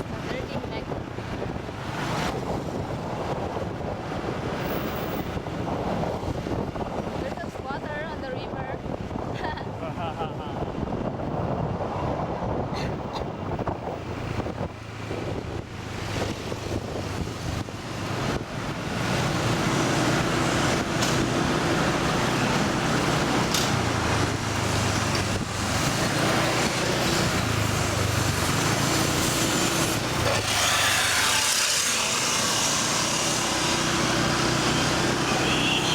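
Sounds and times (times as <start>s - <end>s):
road and wind noise: 0.0s - 35.9s.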